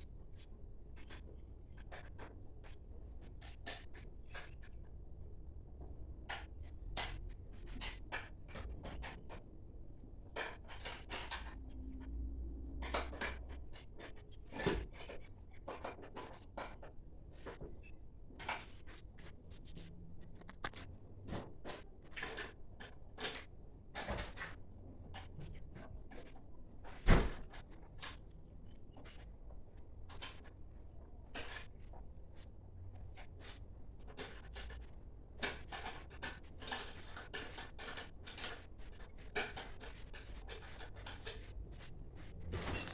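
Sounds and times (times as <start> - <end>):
metal parts clicking and clinking: 42.6 - 42.9.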